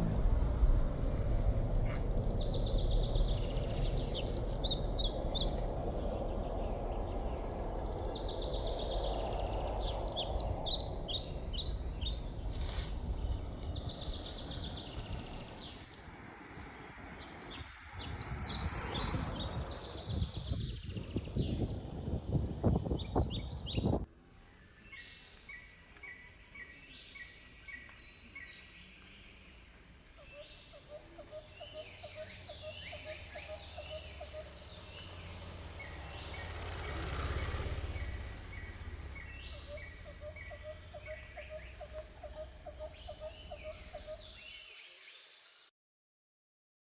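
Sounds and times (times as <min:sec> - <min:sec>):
loud rustling rumble: 0:00.0 - 0:24.1, 0:32.8 - 0:43.6
birds chirping and trilling: 0:00.0 - 0:45.7
insect hum: 0:00.0 - 0:45.7.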